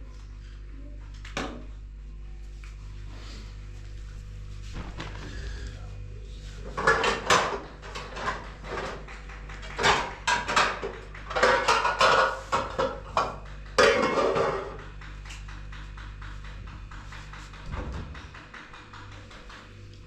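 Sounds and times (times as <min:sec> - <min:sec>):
steady low hum: 0:00.0 - 0:20.0
hard objects clattering and scraping: 0:06.6 - 0:15.2.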